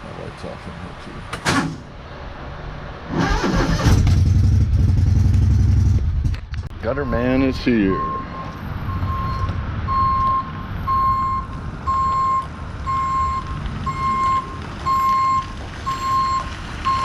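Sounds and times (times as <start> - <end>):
vehicle backup alarm beeping: 6.8 - 17.0.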